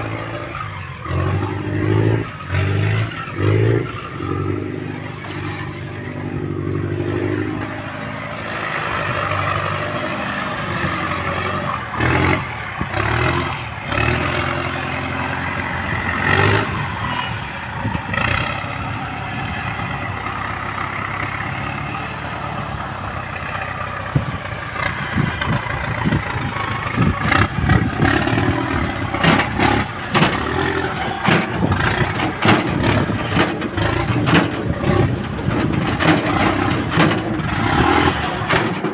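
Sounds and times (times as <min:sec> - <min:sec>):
tractor engine under load: 0:00.0 - 0:38.9
clanks and knocks: 0:27.2 - 0:38.9.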